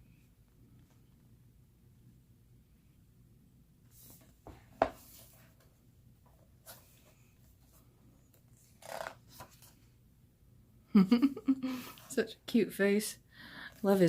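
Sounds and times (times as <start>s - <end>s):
book pages turning: 6.6s - 10.0s
paper rustling: 6.6s - 10.0s.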